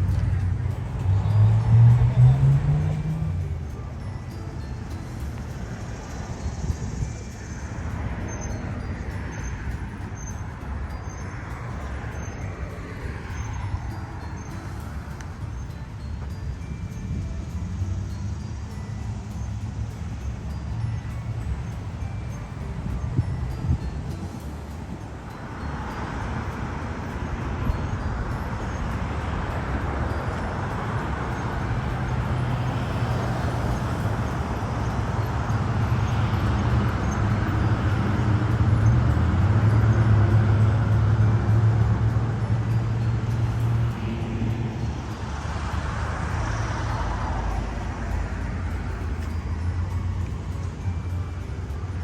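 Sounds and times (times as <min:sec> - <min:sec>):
street traffic: 0:00.0 - 0:52.0.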